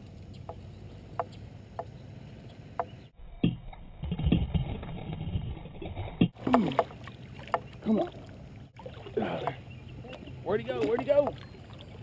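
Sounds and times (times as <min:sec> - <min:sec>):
water movement: 0:04.1 - 0:12.0.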